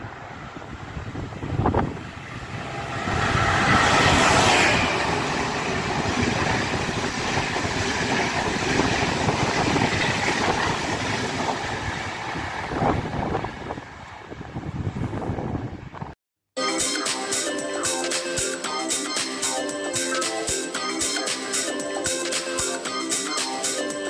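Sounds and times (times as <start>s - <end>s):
train passing at speed: 0.0s - 15.9s.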